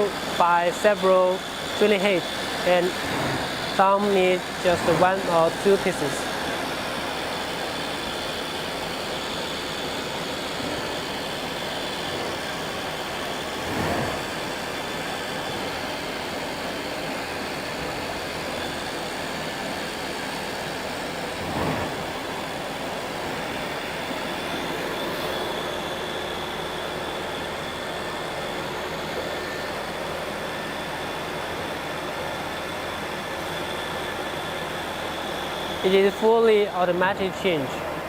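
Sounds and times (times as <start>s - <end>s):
machine running with high whine: 0.0s - 38.0s.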